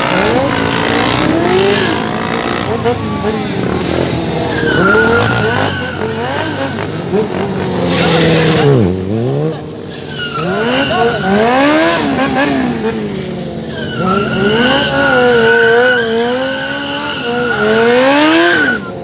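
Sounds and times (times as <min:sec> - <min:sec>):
high squeal: 0:00.0 - 0:07.0
motorcycle engine revving: 0:00.0 - 0:19.0.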